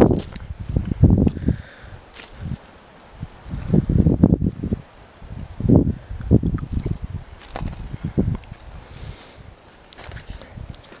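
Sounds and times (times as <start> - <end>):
footsteps on gritty ground: 0.0 - 3.8, 6.5 - 11.0.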